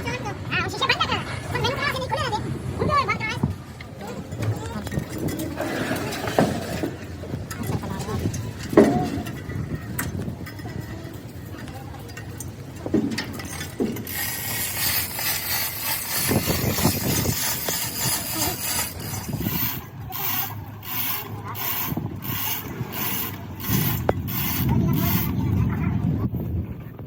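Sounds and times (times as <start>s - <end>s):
hand tool ratcheting: 7.5s - 25.4s.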